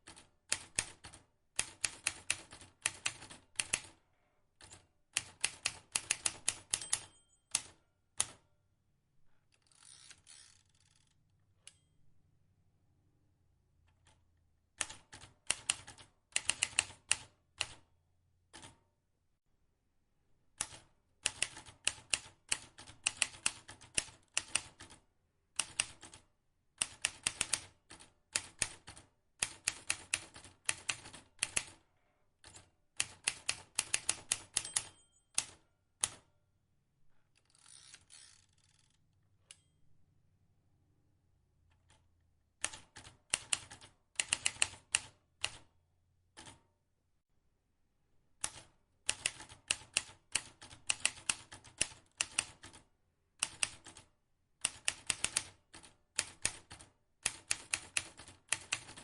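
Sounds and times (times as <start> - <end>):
typewriter key strikes: 6.1 - 7.8, 33.9 - 35.6.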